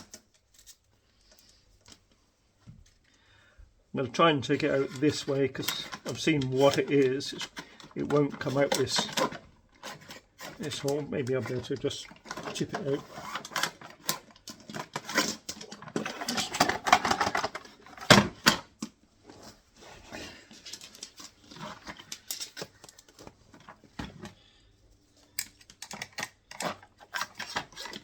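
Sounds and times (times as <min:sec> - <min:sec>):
wire scraping in plastic duct: 0:04.5 - 0:18.5, 0:26.5 - 0:28.0.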